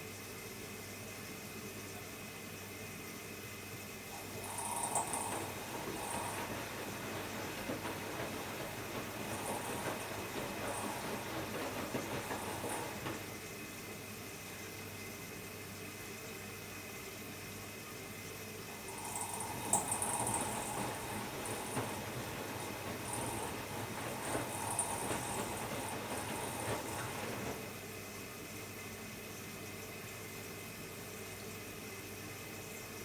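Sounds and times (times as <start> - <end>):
washing machine running: 0.0 - 33.0
water sloshing in drum: 4.2 - 13.4.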